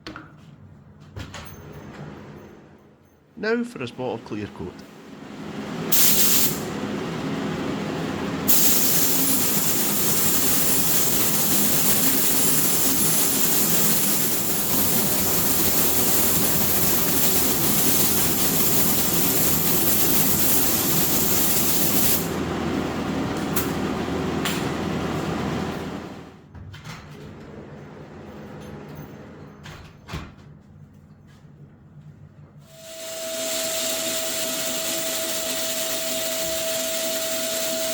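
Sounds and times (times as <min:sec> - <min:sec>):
low machine hum: 0:03.5 - 0:26.4
spray hiss: 0:05.9 - 0:06.6, 0:08.5 - 0:22.3, 0:32.8 - 0:37.8.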